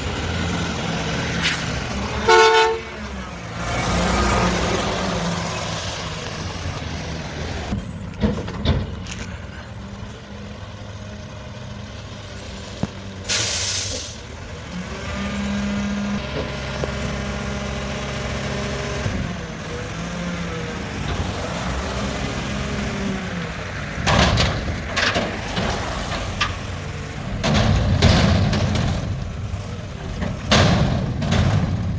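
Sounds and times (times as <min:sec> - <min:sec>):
garbage truck engine running: 0:00.0 - 0:31.9
air brake hiss: 0:01.4 - 0:01.7, 0:13.3 - 0:14.2
loud metal clanks: 0:24.0 - 0:31.9.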